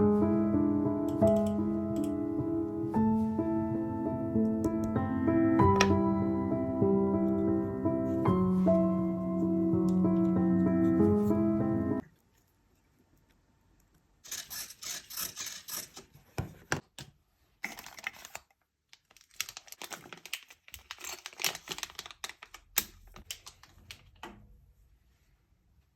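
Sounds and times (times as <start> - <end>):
computer keyboard typing: 1.1 - 2.2.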